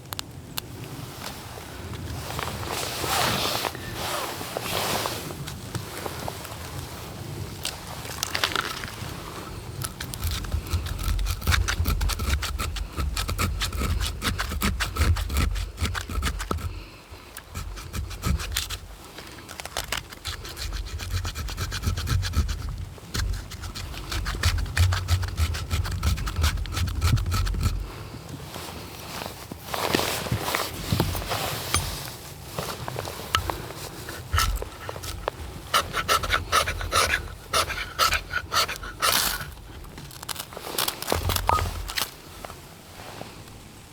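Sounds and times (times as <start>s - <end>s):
blade rasping wood: 9.8s - 27.9s, 33.3s - 42.2s.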